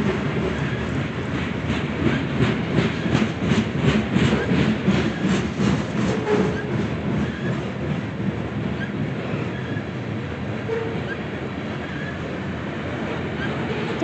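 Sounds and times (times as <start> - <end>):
train wheels rumbling on rails: 0.0 - 14.0
faint track squeaks: 6.0 - 7.6, 8.8 - 10.0, 10.7 - 12.3.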